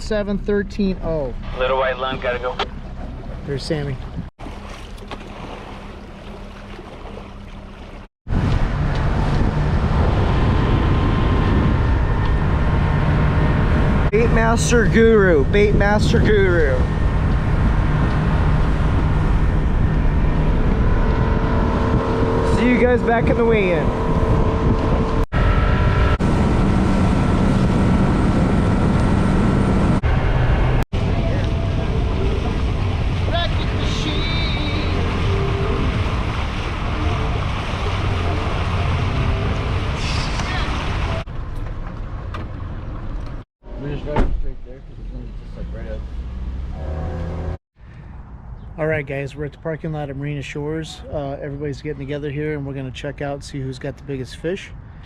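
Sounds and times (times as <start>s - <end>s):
outboard engine hum: 0.0s - 43.4s
water noise: 0.7s - 43.4s
wind rushing on microphone: 8.3s - 41.2s.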